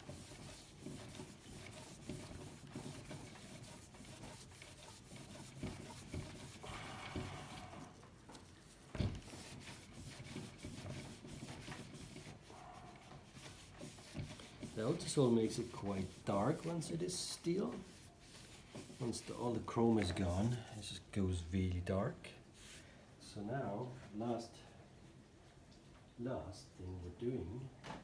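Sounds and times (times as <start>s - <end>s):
hand rubbing metal frame: 0.0s - 21.0s.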